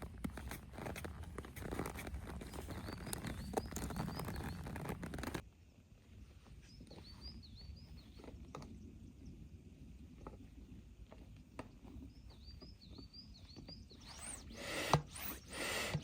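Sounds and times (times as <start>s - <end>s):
gear rustling and clicking: 0.0s - 5.4s
quiet outdoor ambience: 0.0s - 16.0s
songbird chirping: 2.0s - 16.0s.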